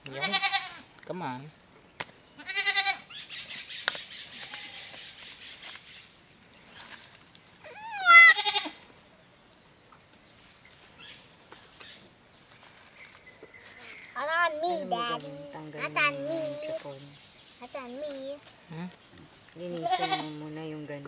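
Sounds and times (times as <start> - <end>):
young goat bleating: 0.1 - 0.8, 2.4 - 3.1, 4.4 - 4.9, 7.6 - 8.8, 19.8 - 20.4.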